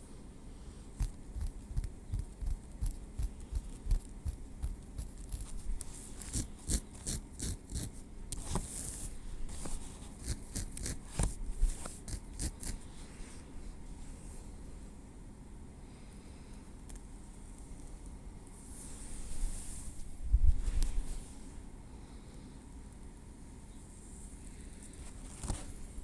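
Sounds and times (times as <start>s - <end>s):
rustling scrape: 5.0s - 14.5s, 18.6s - 21.6s.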